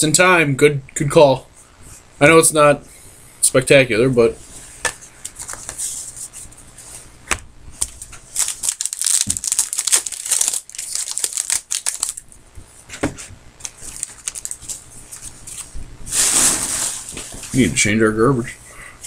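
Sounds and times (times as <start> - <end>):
wrappers being torn and crinkled: 7.8 - 12.2, 13.6 - 15.7.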